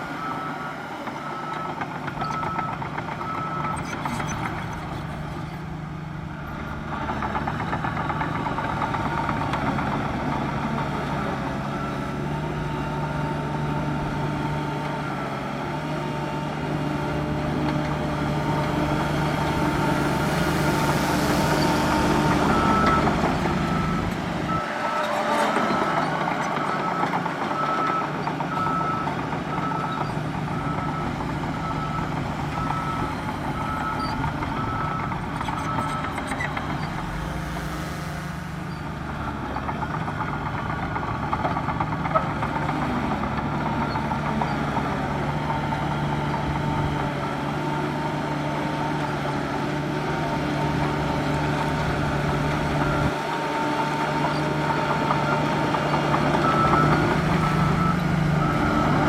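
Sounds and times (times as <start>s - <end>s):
heavy diesel engines running: 0.0s - 59.0s
reversing alarm beeping: 20.5s - 39.4s.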